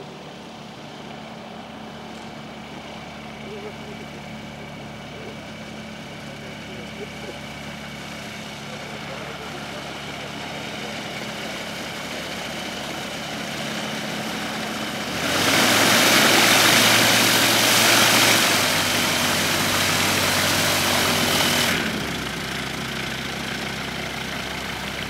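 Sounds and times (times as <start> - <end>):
aircraft piston engine idling: 0.0 - 25.0
loud rushing noise: 15.2 - 22.0.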